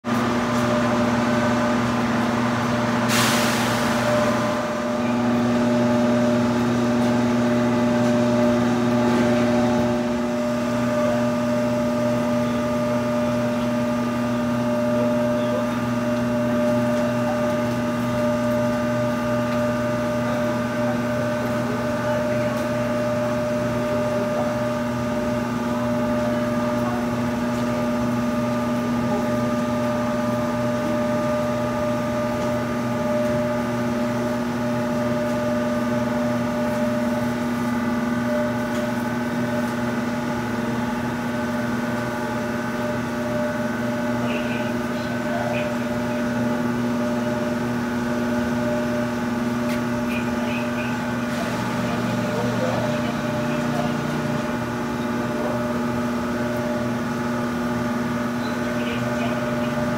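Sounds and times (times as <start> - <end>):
train electrical hum: 0.0 - 59.9.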